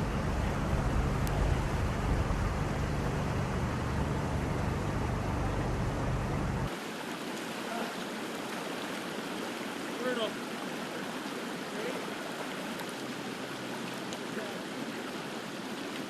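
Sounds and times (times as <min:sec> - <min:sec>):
heavy low rumble: 0:00.0 - 0:06.7
floodwater rushing: 0:00.0 - 0:16.0.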